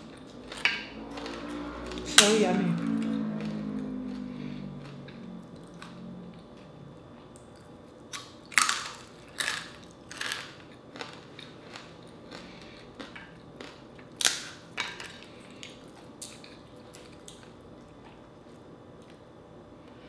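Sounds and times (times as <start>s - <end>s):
chewing crisp fried fish: 3.3s - 19.2s.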